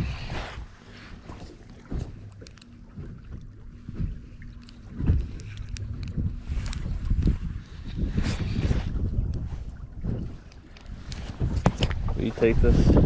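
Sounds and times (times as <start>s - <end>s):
wind buffeting microphone: 0.0s - 13.0s
dull knocks on hull: 1.2s - 5.4s, 11.3s - 12.2s.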